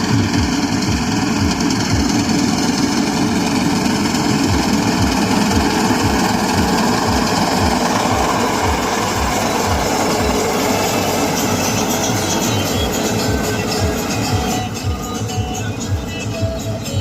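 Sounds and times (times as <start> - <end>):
tractor engine running: 0.0 - 17.0
low regular thumping: 4.4 - 11.4.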